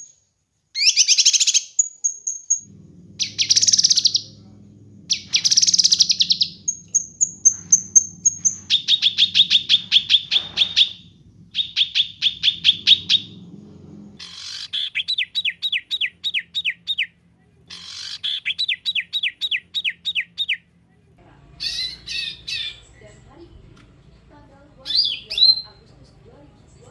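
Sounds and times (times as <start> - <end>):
songbird singing: 0.8 - 20.6, 21.2 - 26.9.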